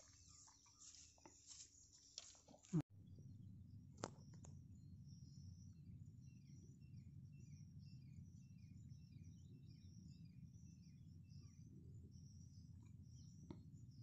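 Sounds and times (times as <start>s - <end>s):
bird chirping in falling calls: 0.0s - 2.8s
thin high chirping: 0.0s - 2.8s.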